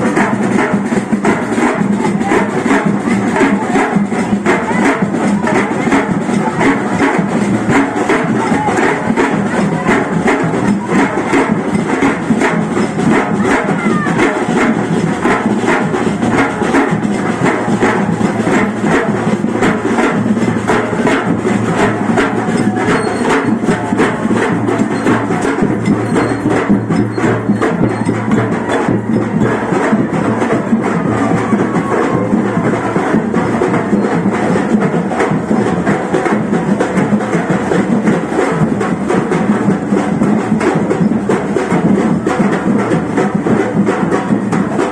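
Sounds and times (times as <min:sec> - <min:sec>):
procession band music: 0:01.4 - 0:31.3
wood block strokes: 0:14.2 - 0:29.3.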